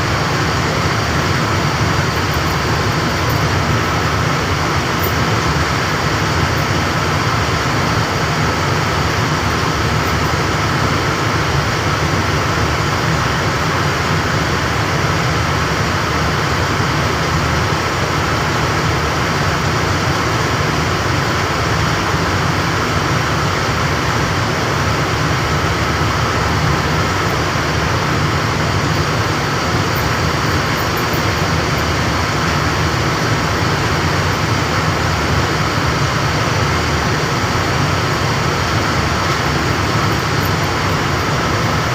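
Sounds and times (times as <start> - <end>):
thin mechanical whine: 0.0 - 13.6, 17.1 - 41.9
machinery rumbling: 24.8 - 41.9.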